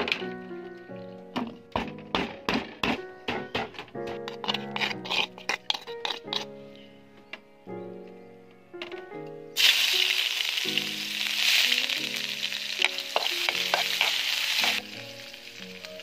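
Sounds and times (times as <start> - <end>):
background music: 0.0 - 16.0
food sizzling in hot oil: 9.6 - 16.0.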